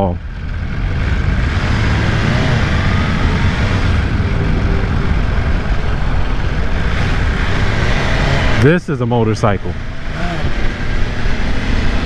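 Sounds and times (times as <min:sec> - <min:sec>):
motorcycle engine at speed: 0:00.0 - 0:12.0.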